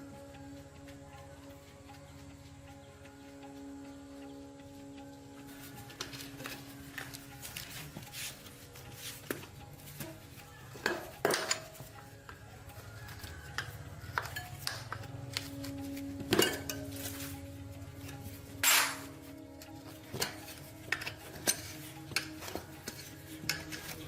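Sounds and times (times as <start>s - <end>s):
metal tools clinking and knocking: 10.7s - 12.0s, 13.1s - 17.3s, 18.6s - 24.0s.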